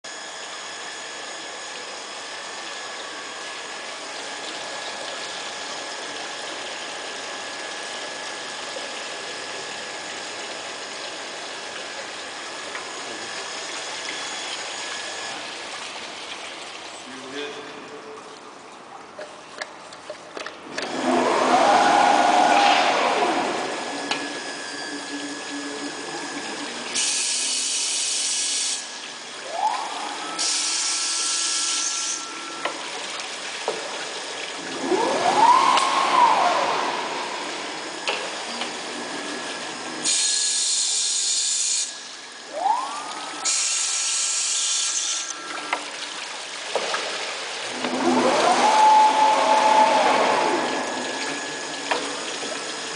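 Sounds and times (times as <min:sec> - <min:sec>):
running water: 0:00.3 - 0:52.9
spindle motor whining: 0:20.4 - 0:33.9, 0:34.6 - 0:45.9, 0:47.7 - 0:52.9.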